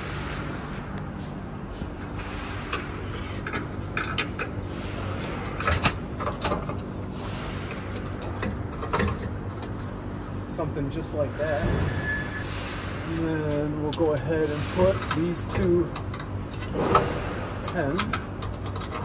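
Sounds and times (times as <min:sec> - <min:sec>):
low background hum: 0:00.0 - 0:19.0
metal pipes clinking: 0:02.1 - 0:10.6, 0:13.2 - 0:19.0.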